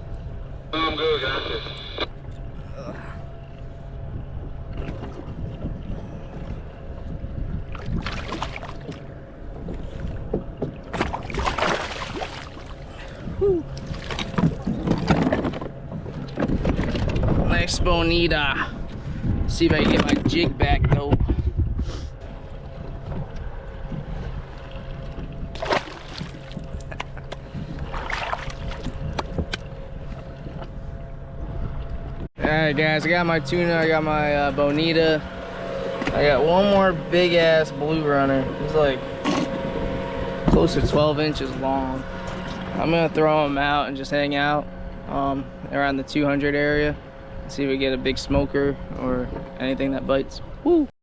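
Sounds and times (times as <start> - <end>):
wind on microphone: 2.6 - 11.5, 13.1 - 37.4, 38.1 - 45.7
loud splashing: 11.0 - 12.8, 25.6 - 26.5.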